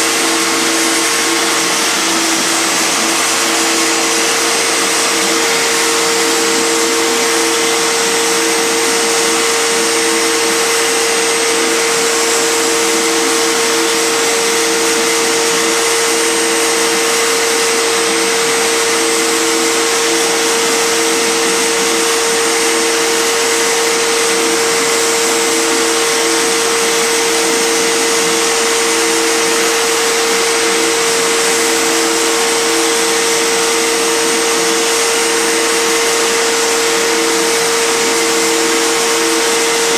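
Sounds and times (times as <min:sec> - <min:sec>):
loud rushing noise: 0:00.0 - 0:19.0
spindle motor whine: 0:00.0 - 0:39.9.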